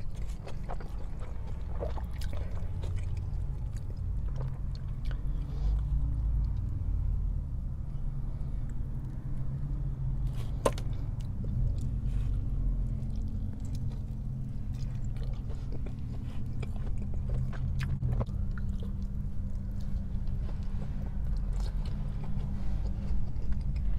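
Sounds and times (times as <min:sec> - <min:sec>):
chewing food: 0:00.0 - 0:06.8, 0:08.4 - 0:23.9
steady low hum: 0:00.0 - 0:23.9.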